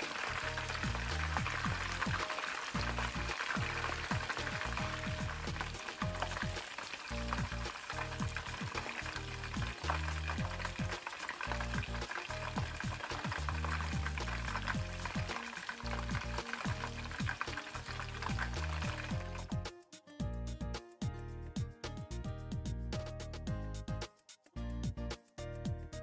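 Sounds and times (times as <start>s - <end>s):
oil sizzling and crackling: 0.0s - 19.7s
low background music: 0.0s - 26.0s.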